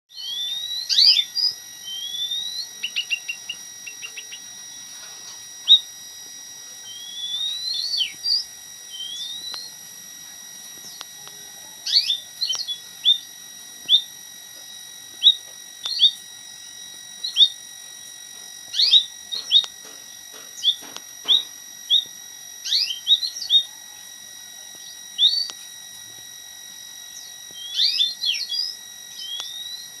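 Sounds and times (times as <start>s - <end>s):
bird whistles and chirps: 0.1s - 4.4s, 6.9s - 9.7s, 20.6s - 23.7s, 27.2s - 30.0s.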